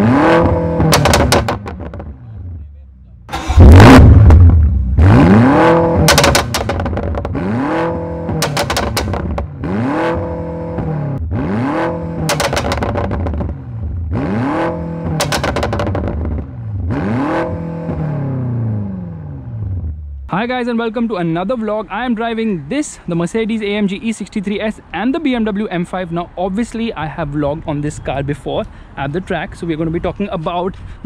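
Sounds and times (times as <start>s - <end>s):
car engine revving: 0.0s - 20.3s
exhaust crackles and pops: 0.3s - 2.4s, 3.3s - 10.9s, 12.0s - 13.7s, 14.8s - 16.6s.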